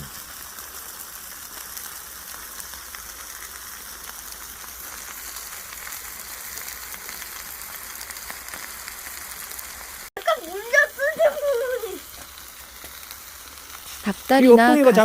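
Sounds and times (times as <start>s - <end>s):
chicken sizzling on a grill: 0.0s - 15.0s
fat crackling: 10.1s - 15.0s.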